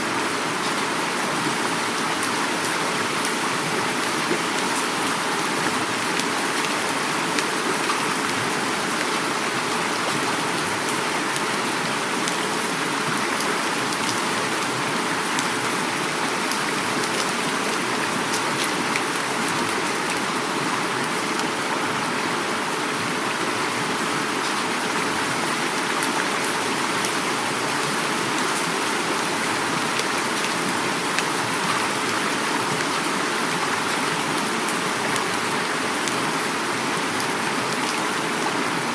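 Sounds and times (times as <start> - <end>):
flowing river water: 0.0 - 38.9
heavy rain: 0.0 - 38.9.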